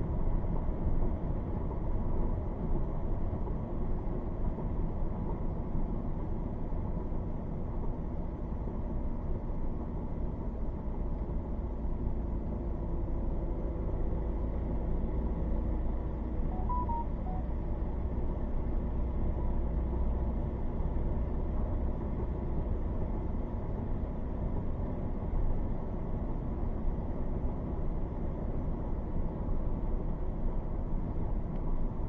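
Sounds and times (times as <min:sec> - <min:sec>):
road and engine rumble in car: 0:00.0 - 0:32.0
short electronic beeps: 0:16.5 - 0:17.5.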